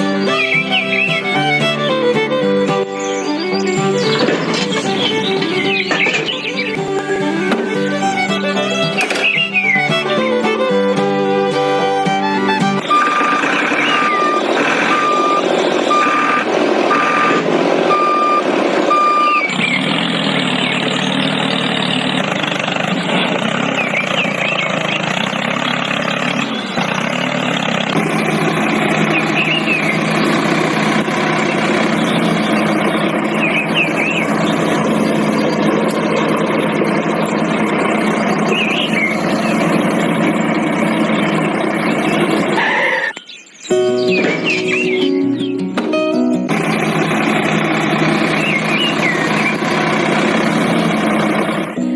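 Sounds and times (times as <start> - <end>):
vehicle engine running: 0.0 - 43.2, 43.8 - 51.9
reversing alarm beeping: 12.8 - 19.8, 31.4 - 43.3.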